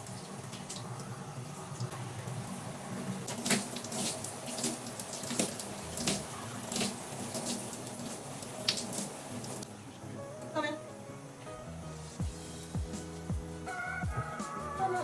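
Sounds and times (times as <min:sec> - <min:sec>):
water running from a tap: 0:00.0 - 0:09.6.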